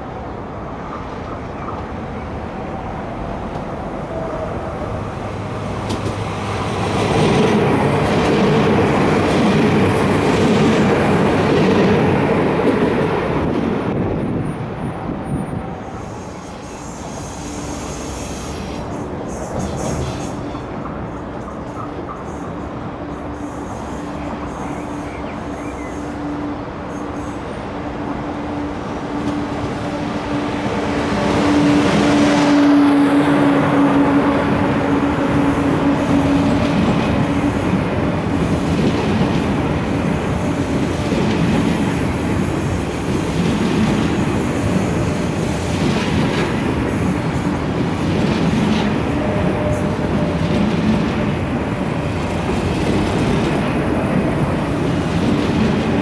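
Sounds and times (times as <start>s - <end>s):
train running on track: 0.0s - 56.0s.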